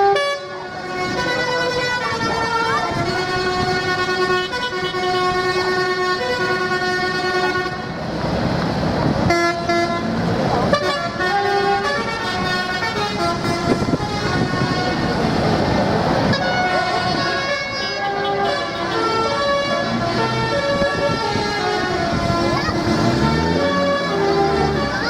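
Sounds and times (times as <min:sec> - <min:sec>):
tractor horns tooting: 0:00.0 - 0:08.0, 0:09.2 - 0:15.6, 0:16.2 - 0:25.0
tractor engines running: 0:10.0 - 0:25.0.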